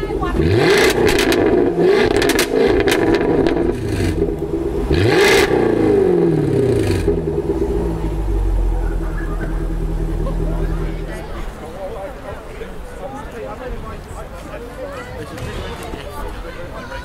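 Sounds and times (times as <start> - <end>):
car engine idling: 0.0 - 12.2
car engine revving: 0.1 - 11.6
exhaust cracks: 0.3 - 11.6.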